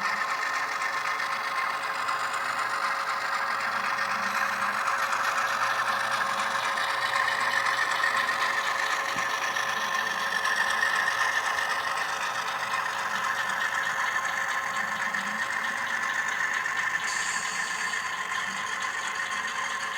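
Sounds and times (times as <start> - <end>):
diesel locomotive engine sound: 0.0 - 19.9
model train wheels clattering: 0.0 - 19.9.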